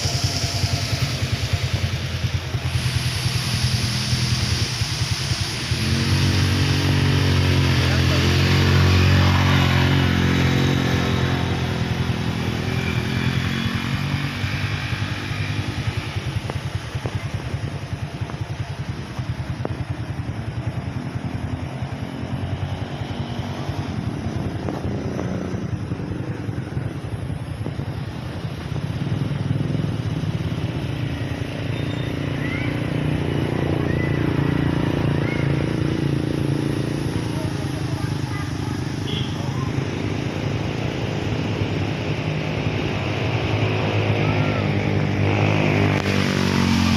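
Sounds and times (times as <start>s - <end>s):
small motorcycle engine running: 0.0s - 46.9s.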